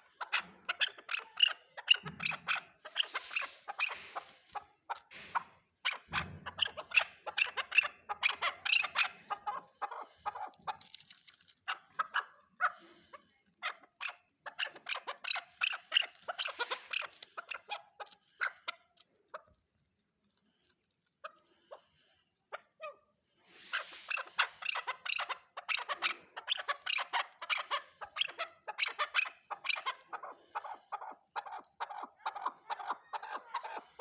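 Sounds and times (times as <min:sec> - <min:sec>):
partridge clucking: 0:00.2 - 0:12.2, 0:14.5 - 0:18.6.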